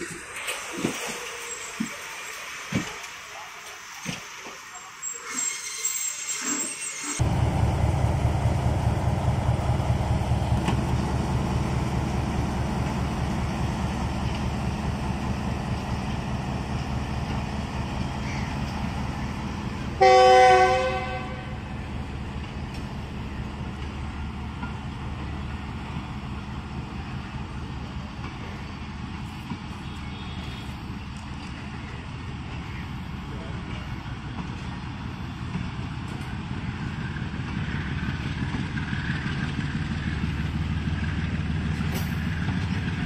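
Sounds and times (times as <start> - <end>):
train rolling past rumble: 0.0 - 43.0
train horn blast: 20.0 - 21.7.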